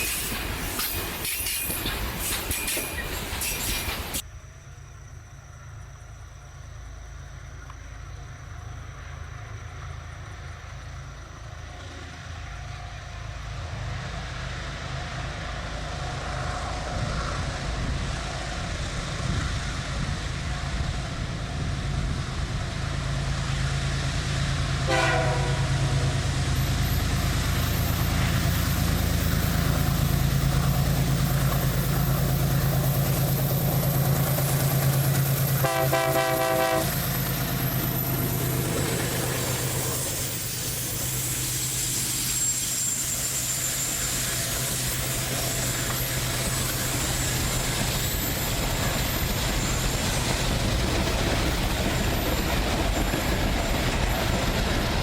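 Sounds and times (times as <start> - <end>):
diesel locomotive engine drone: 0.0 - 55.0
locomotive horn blast: 24.8 - 26.3, 35.5 - 37.0.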